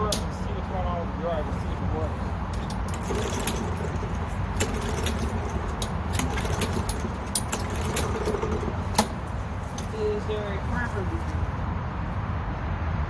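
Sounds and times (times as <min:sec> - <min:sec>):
lawn mower clicks and rattles: 0:02.4 - 0:11.0.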